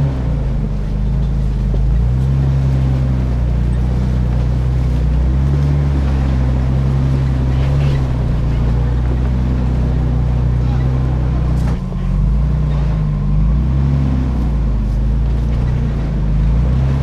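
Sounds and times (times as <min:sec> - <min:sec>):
truck engine droning: 0:00.0 - 0:17.0
tyre and road rumble: 0:00.0 - 0:17.0.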